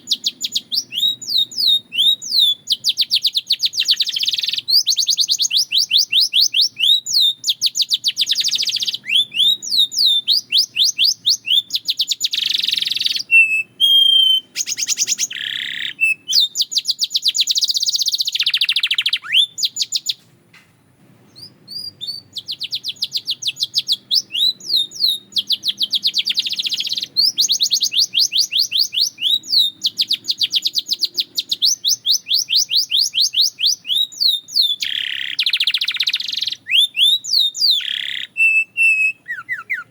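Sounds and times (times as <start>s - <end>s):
canary trilling: 0.0s - 20.2s, 21.3s - 39.9s
canary whistled notes: 8.0s - 16.7s, 31.5s - 39.9s.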